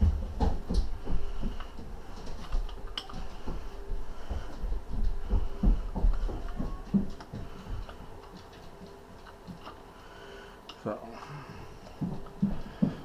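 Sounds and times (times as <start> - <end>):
low thumps and knocks: 0.0 - 8.1.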